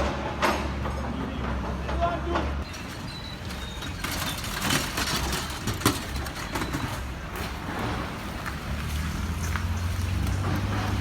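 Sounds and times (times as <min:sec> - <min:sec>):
knocks and clanks: 0:00.0 - 0:08.6.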